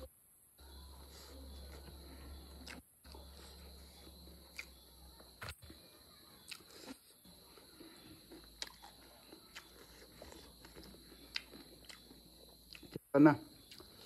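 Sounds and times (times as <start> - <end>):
person chewing and mouth smacks: 1.1 - 4.8, 6.4 - 13.0, 13.6 - 14.0.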